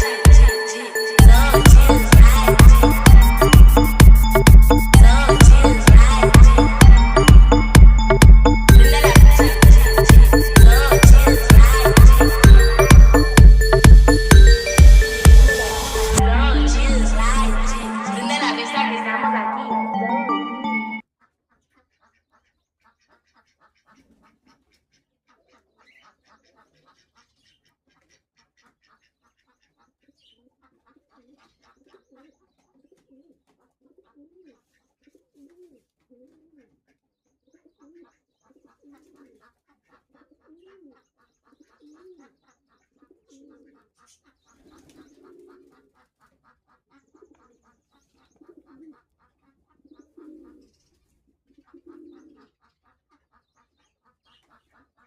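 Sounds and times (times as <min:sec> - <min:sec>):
pigeon cooing: 0:31.2 - 0:36.8, 0:37.6 - 0:39.5, 0:40.1 - 0:42.4, 0:43.0 - 0:43.9, 0:44.7 - 0:45.9, 0:48.4 - 0:49.1, 0:49.8 - 0:50.8, 0:51.5 - 0:52.5.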